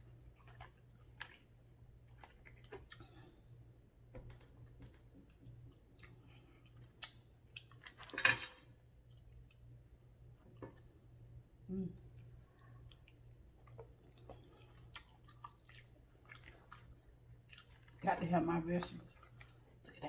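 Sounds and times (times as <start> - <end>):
close chewing: 0.0 - 3.3, 5.2 - 9.8, 12.2 - 18.0, 18.8 - 20.0.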